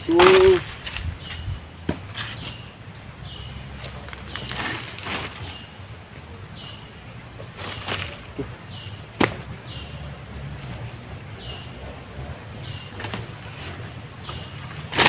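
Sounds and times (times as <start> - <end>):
small bird chirping: 0.0 - 4.7
leaves and twigs rustling: 0.0 - 11.6, 12.6 - 15.0.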